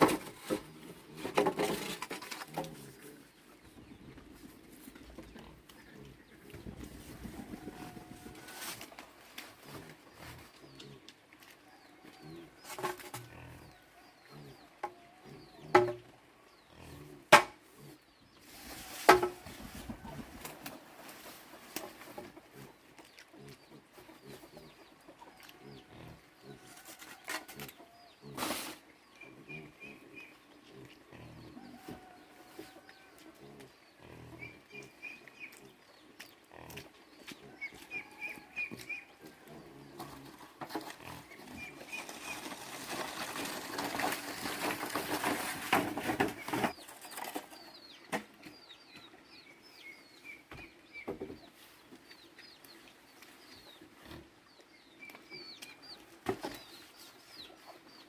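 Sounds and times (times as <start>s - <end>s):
scratchy noise: 28.3s - 28.8s.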